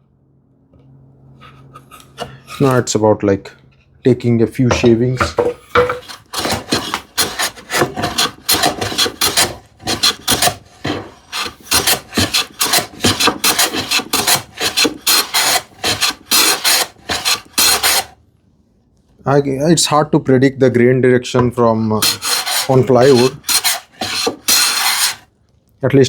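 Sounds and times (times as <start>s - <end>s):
hand plane shaving wood: 1.8s - 2.9s, 4.7s - 18.2s, 22.0s - 25.2s.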